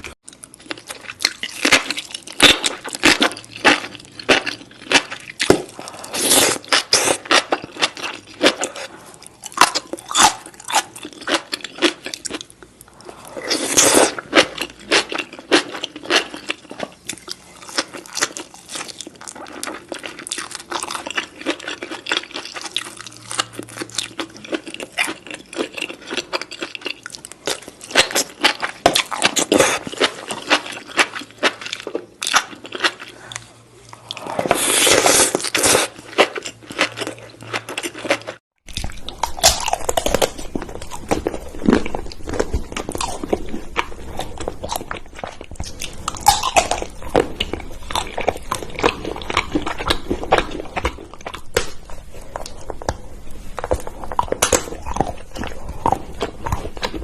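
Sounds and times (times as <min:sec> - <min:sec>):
crunchy food being chewed: 0:00.0 - 0:57.0.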